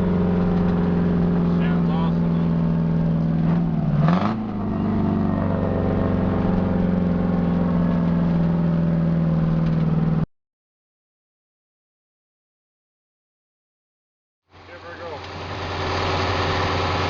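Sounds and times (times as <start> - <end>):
truck diesel engine exhaust: 0.0 - 10.3, 14.5 - 17.0.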